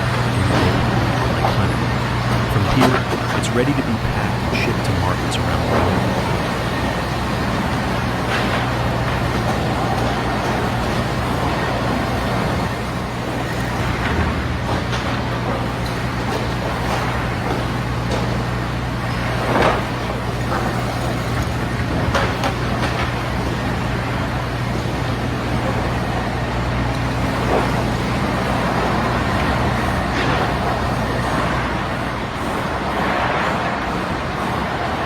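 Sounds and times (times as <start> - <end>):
heavy machinery humming: 0.0 - 8.6.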